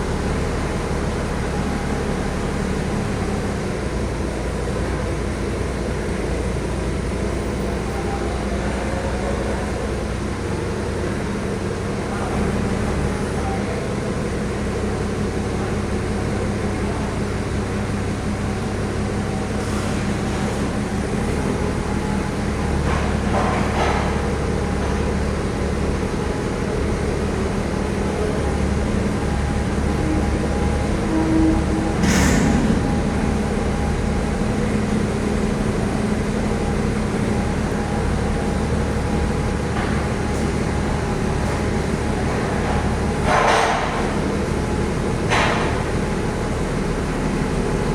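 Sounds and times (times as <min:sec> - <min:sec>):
heavy vehicle engine running: 0:00.0 - 0:47.9
short rattle: 0:31.5 - 0:35.3.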